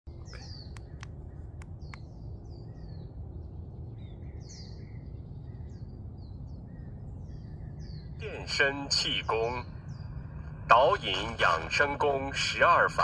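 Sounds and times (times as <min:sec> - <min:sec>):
low background rumble: 0:00.1 - 0:13.0
small birds chirping: 0:00.1 - 0:13.0
sharp clicks: 0:00.7 - 0:02.1.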